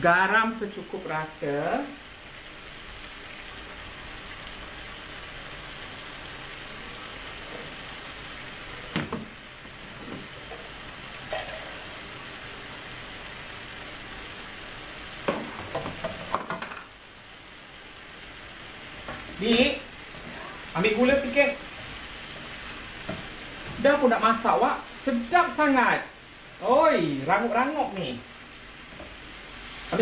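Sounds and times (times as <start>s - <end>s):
wok stir-fry sizzling: 0.0s - 30.0s.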